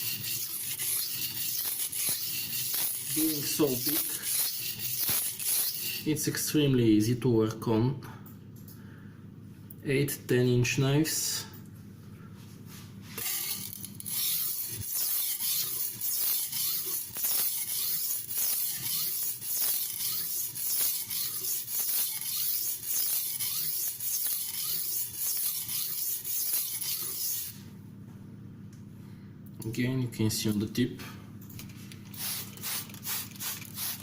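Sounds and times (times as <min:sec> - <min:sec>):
knife scraping on wet whetstone: 0:00.0 - 0:06.2, 0:13.2 - 0:27.6.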